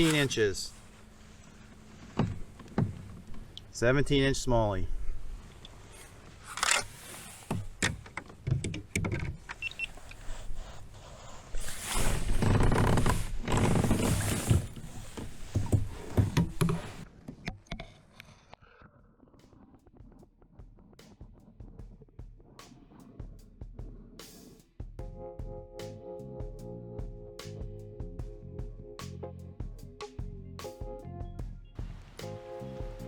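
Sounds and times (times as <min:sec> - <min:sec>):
knocks and rattles on kayak: 0:01.9 - 0:03.6, 0:07.4 - 0:09.9, 0:11.6 - 0:17.6.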